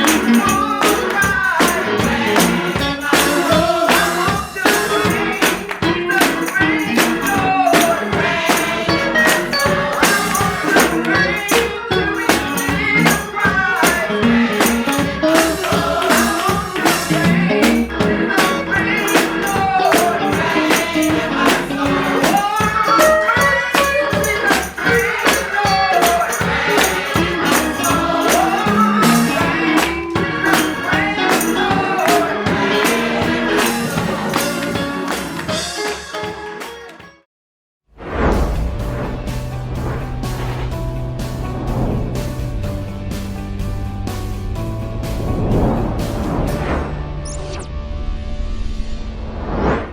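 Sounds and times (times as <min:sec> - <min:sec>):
gospel singing: 0:00.0 - 0:36.8
tambourine beat: 0:00.0 - 0:36.9.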